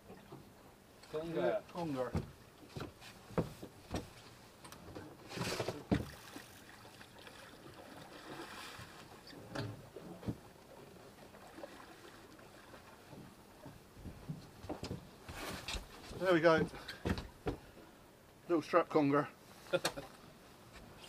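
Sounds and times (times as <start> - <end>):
hiss of water and wind: 0.0 - 14.5
rustling scrape on boat: 1.9 - 6.7, 14.8 - 16.4
knocks on boat: 2.1 - 4.2, 5.6 - 6.2.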